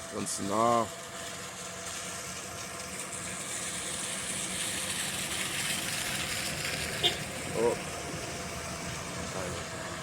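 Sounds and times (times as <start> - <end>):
low engine hum: 0.0 - 10.0
rain falling: 1.5 - 10.0.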